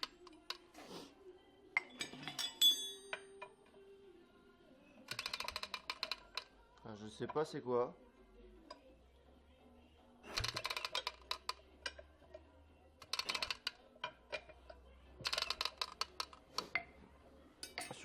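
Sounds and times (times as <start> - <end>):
tractor mechanism metallic rattling: 5.1 - 6.5, 10.4 - 12.1, 13.0 - 16.9.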